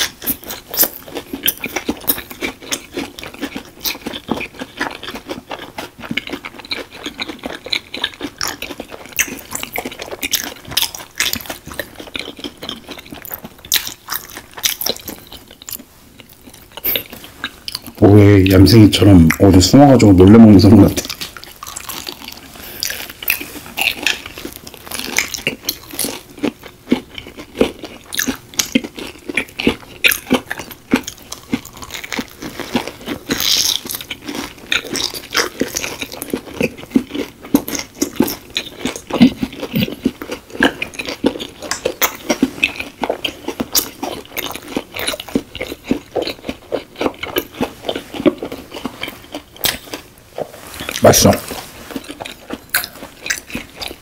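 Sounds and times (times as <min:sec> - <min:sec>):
people chewing crunchy food: 0:00.0 - 0:54.0.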